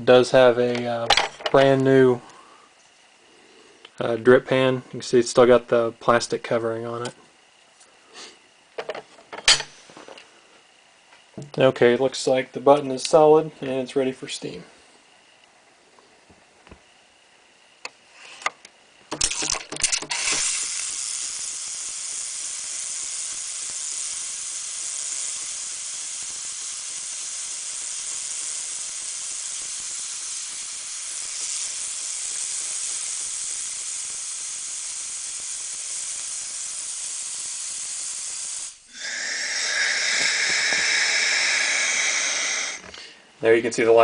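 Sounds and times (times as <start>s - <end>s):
steam wand hissing and sputtering: 20.1s - 43.2s.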